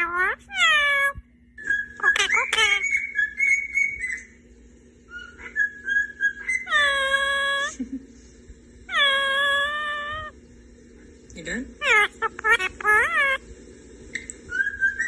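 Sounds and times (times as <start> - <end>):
parrot long level calls: 0.0 - 4.3, 5.1 - 7.8, 8.9 - 10.4, 11.8 - 13.5
parrot whistling: 0.0 - 4.4, 5.1 - 7.8, 8.9 - 10.3, 11.8 - 13.4, 14.5 - 15.0.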